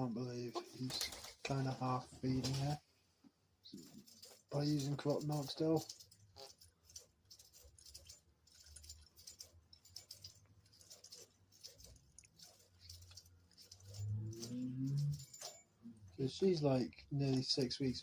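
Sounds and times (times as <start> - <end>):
doves clicking and tapping: 3.7 - 18.0.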